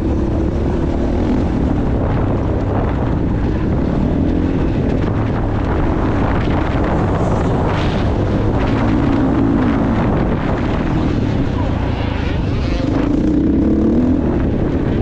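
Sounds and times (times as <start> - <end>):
wind noise on microphone: 0.0 - 15.0
motocross bike engine revving: 6.3 - 14.8.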